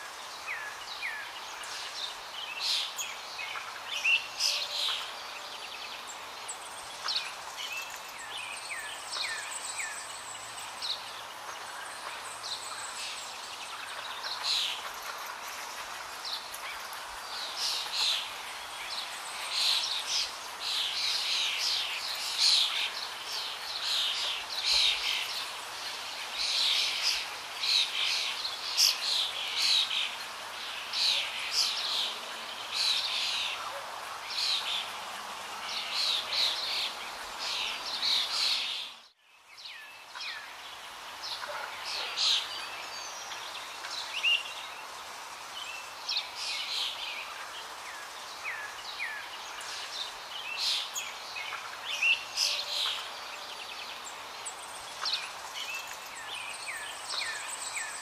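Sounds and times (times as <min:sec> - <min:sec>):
background hiss: 0:00.0 - 0:58.0
songbird twittering: 0:00.4 - 0:25.5, 0:45.6 - 0:58.0.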